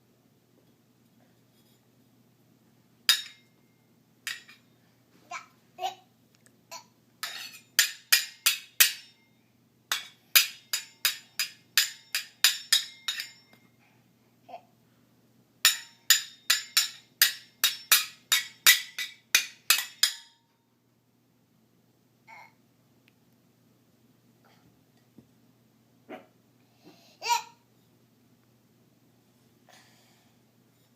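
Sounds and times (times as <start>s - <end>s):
metal pan and lid clanking: 7.2s - 9.1s, 9.9s - 13.5s.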